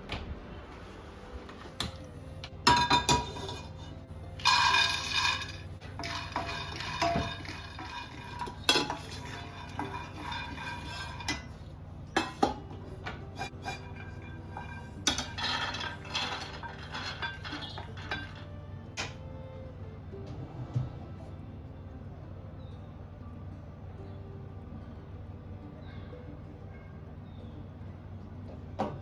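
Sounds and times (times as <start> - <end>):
dishes and utensils clattering: 1.5 - 19.2.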